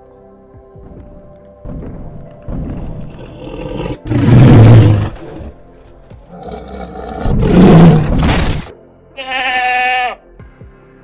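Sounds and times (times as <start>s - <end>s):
dinosaur roar: 3.1s - 5.6s, 6.3s - 8.3s.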